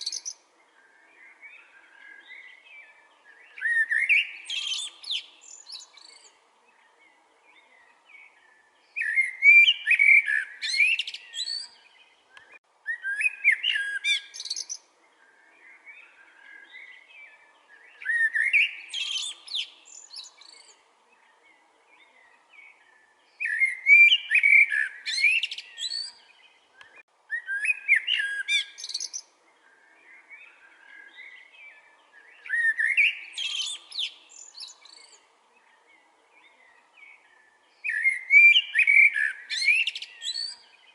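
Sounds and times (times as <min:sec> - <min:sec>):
songbird warbling: 0:22.0 - 0:35.8.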